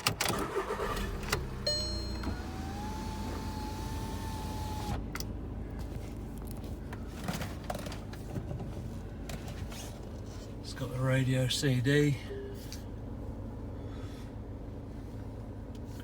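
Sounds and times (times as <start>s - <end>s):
diesel engine idling: 0.4s - 7.2s
electric motor whine: 2.2s - 5.0s.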